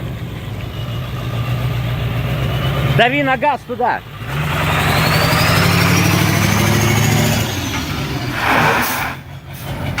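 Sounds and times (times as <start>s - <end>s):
truck engine revving: 0.0s - 10.0s
short rushing noise: 8.2s - 9.7s.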